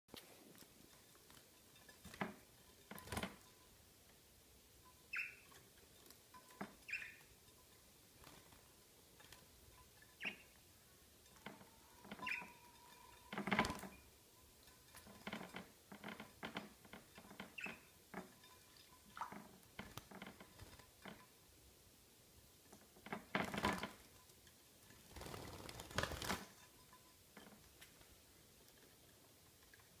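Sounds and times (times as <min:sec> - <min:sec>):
birds splashing and fluttering: 0:00.9 - 0:03.7, 0:04.9 - 0:10.6, 0:11.2 - 0:21.3, 0:23.0 - 0:24.2, 0:24.8 - 0:29.1
bird chirps: 0:05.1 - 0:05.5, 0:06.8 - 0:07.3, 0:12.0 - 0:13.1.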